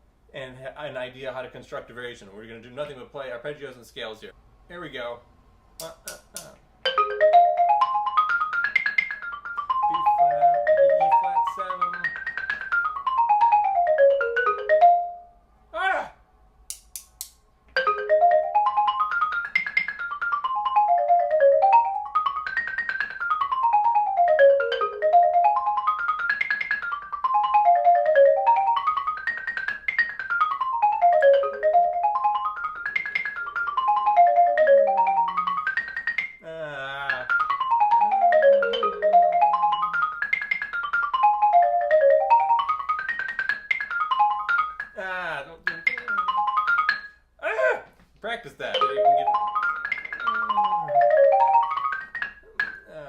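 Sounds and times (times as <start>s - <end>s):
xylophone arpeggios: 6.8s - 15.4s, 17.8s - 47.2s, 48.7s - 53.0s.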